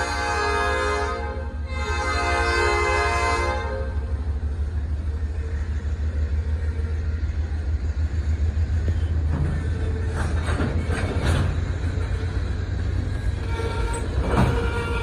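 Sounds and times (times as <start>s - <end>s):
locomotive air horn: 0.0s - 4.1s, 13.4s - 15.0s
freight cars rumbling past: 0.0s - 15.0s
wheels clacking over rail joints: 8.7s - 15.0s.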